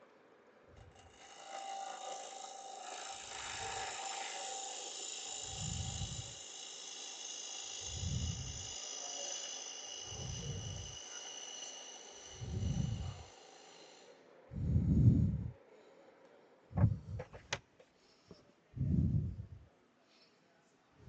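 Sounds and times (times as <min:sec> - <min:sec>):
lathe gouge scraping wood: 0:00.8 - 0:14.1
low thump: 0:16.8 - 0:17.6.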